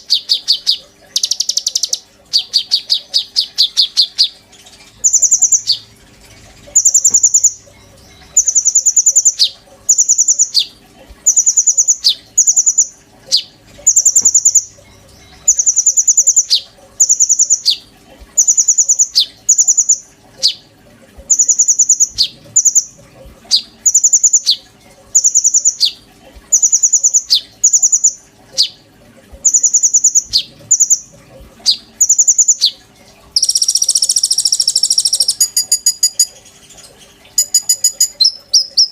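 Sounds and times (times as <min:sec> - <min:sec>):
songbird singing trilled phrases: 0:00.0 - 0:04.4, 0:05.0 - 0:05.9, 0:06.7 - 0:10.7, 0:11.3 - 0:17.8, 0:21.3 - 0:22.9, 0:23.5 - 0:24.6, 0:25.2 - 0:28.8, 0:29.4 - 0:32.8, 0:33.4 - 0:38.9.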